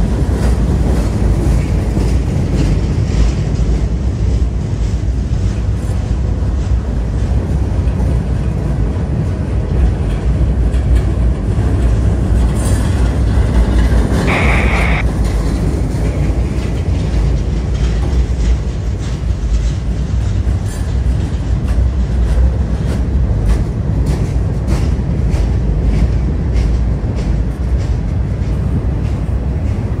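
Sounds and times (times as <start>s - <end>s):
wheels clicking over rail joints: 0.0s - 14.2s, 15.2s - 30.0s
freight train rumbling on steel bridge: 0.0s - 30.0s.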